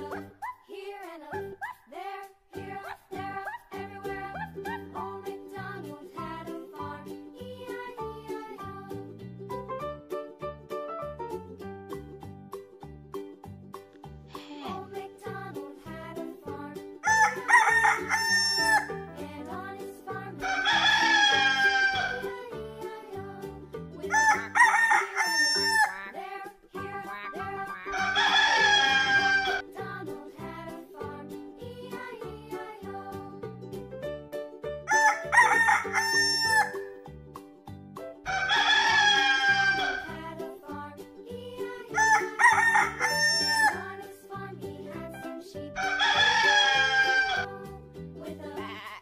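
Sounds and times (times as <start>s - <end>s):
children's music: 0.0s - 49.0s
rooster crowing: 17.0s - 18.9s, 20.4s - 22.3s, 24.1s - 26.1s, 27.9s - 29.6s, 34.9s - 36.9s, 38.3s - 40.1s, 41.9s - 43.9s, 45.8s - 47.5s.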